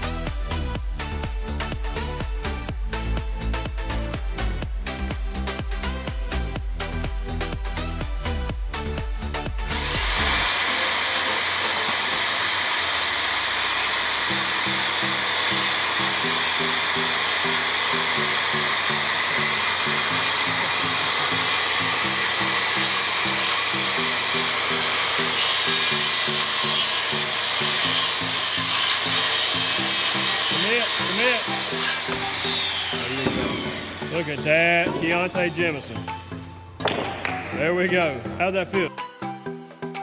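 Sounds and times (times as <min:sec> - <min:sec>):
background music with a beat: 0:00.0 - 0:10.6, 0:32.0 - 0:40.0
circular saw whining while cutting: 0:09.7 - 0:36.6.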